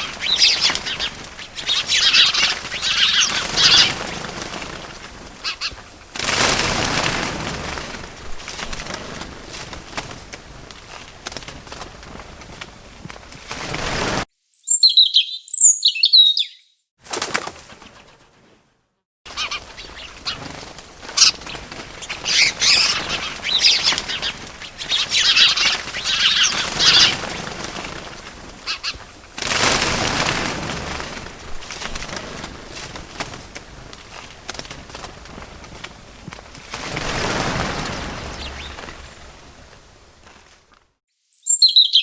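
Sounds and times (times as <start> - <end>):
bird chirps: 0.0 - 3.9, 14.4 - 16.9, 21.2 - 27.2, 38.2 - 39.1, 41.2 - 42.0
bird wings flapping: 0.0 - 14.3, 17.0 - 41.0.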